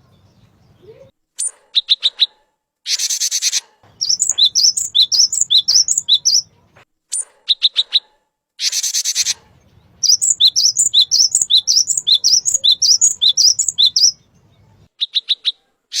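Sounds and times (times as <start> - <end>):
bird singing whistled phrases: 2.9 - 6.5, 10.0 - 14.2
harsh buzzing bird call: 10.0 - 14.2.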